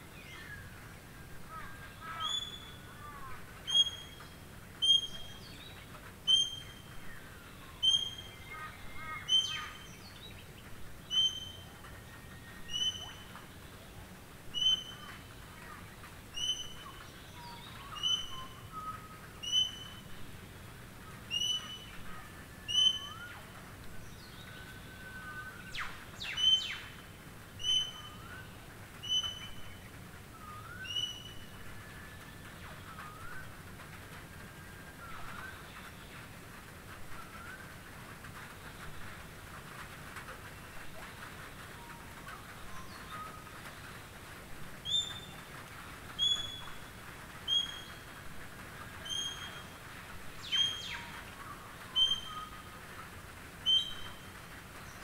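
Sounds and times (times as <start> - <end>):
light rain hiss: 0.0 - 55.0
faint birds calling: 0.2 - 55.0
songbird short high call: 2.0 - 2.9.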